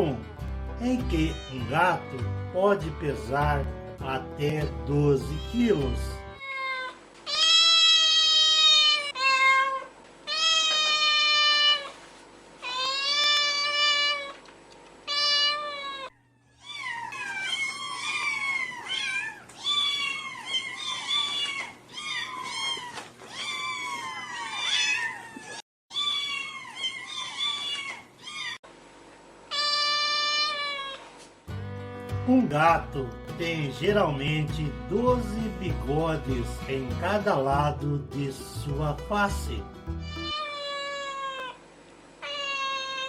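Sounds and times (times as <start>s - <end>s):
cats meowing: 1.1s - 2.4s, 6.4s - 12.0s, 12.6s - 28.6s, 29.5s - 31.2s, 39.9s - 43.0s
kittens mewing: 1.2s - 2.3s, 6.4s - 12.0s, 12.6s - 28.6s, 29.5s - 31.2s, 39.9s - 43.0s.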